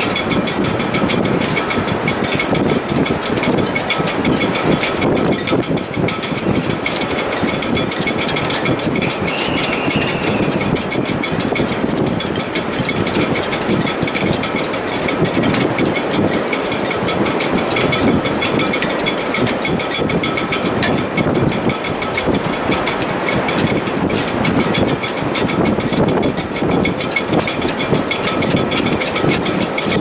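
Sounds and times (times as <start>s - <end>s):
wind rushing through rigging: 0.0s - 30.0s
wires whistling: 9.0s - 11.2s.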